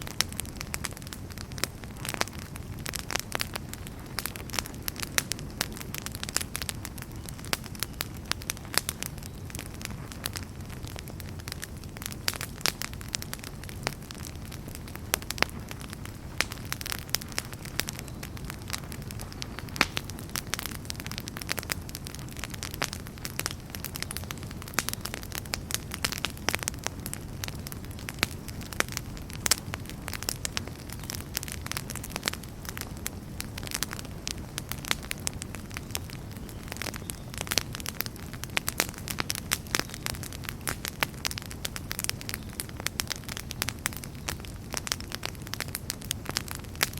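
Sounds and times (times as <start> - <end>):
low rumble of burning: 0.0 - 46.9
wood fire crackling: 0.0 - 46.9.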